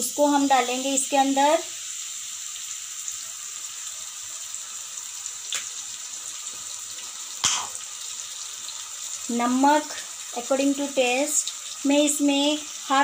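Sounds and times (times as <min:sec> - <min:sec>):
garlic and tomato sizzling in oil: 0:00.0 - 0:13.0.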